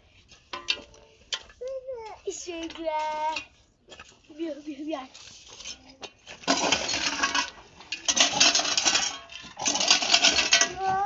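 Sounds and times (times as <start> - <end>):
clinking rattling bursts: 6.5 - 11.0.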